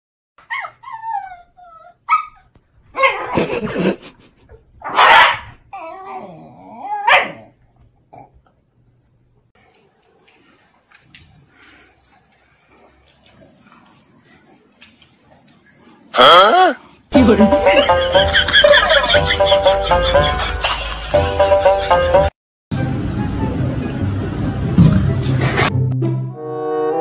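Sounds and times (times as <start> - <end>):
dogs whining: 0.4 - 3.6, 5.7 - 7.5
dogs barking and yelping: 0.4 - 7.6.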